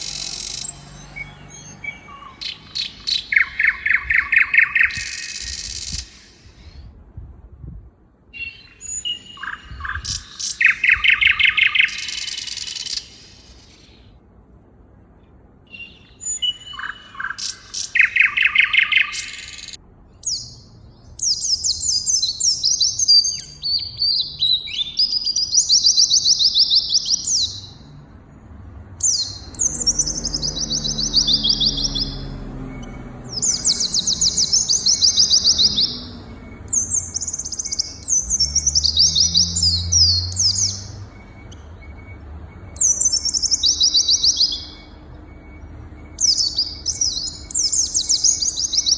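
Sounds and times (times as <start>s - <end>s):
songbird trilling: 0.0s - 6.9s, 8.3s - 14.1s, 15.7s - 27.9s, 29.0s - 48.9s
lower bird chirps: 0.0s - 7.0s, 8.3s - 14.2s, 15.2s - 28.4s, 29.0s - 48.9s.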